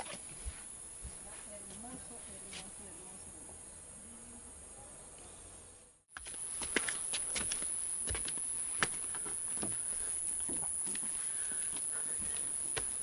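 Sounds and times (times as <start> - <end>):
insects shrilling: 6.1 - 13.0.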